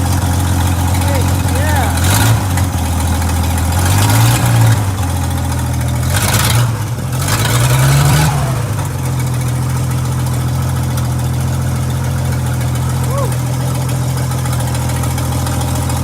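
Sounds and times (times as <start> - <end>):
engine idling: 0.0 - 16.0
straight-six engine revving: 0.7 - 5.4, 6.0 - 10.4.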